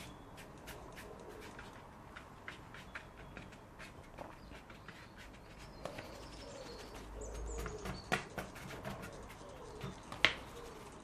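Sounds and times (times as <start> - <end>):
bird cooing: 5.8 - 11.0.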